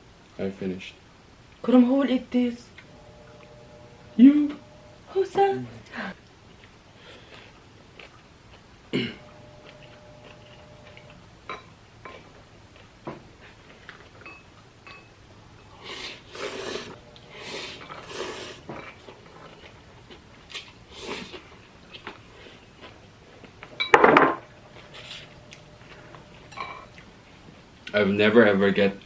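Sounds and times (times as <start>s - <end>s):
utensils clinking against a bowl: 14.2s - 15.8s, 23.8s - 27.0s.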